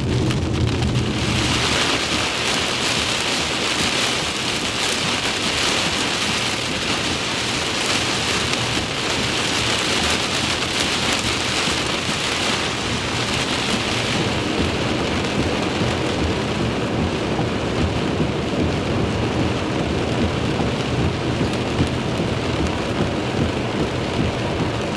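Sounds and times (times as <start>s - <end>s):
low rumble: 0.0s - 4.9s, 12.1s - 24.9s
steady heavy rain: 0.0s - 24.9s.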